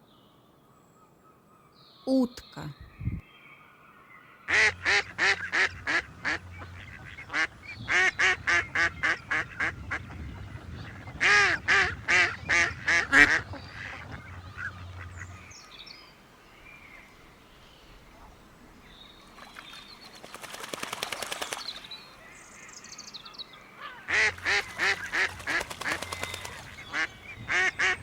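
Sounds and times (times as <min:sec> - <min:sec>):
duck quacking: 0:24.1 - 0:28.0.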